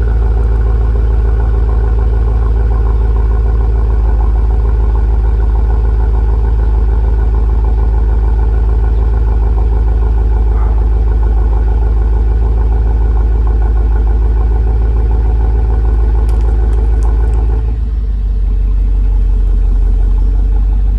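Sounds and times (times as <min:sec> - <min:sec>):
car engine idling: 0:00.0 - 0:20.9.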